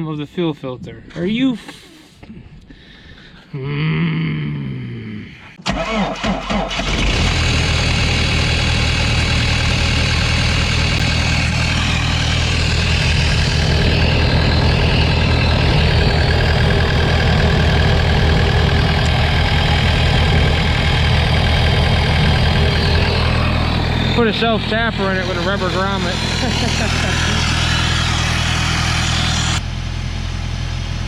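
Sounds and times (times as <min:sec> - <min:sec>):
engine idling: 0:05.6 - 0:31.0.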